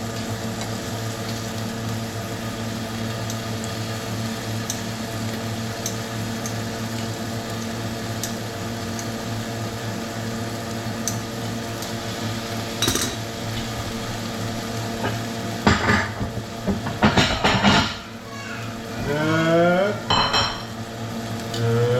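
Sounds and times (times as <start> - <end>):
steady hum: 0.0 - 21.9
loud kitchen clatter: 12.4 - 20.8
utensils clinking on dishes: 12.8 - 13.8, 15.0 - 18.1, 20.1 - 20.8.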